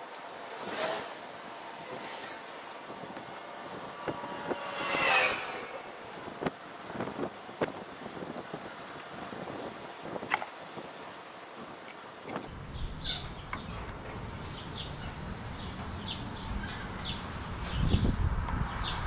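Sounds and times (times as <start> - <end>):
wind rumble on microphone: 1.4 - 19.0
small birds chirping: 3.6 - 13.8.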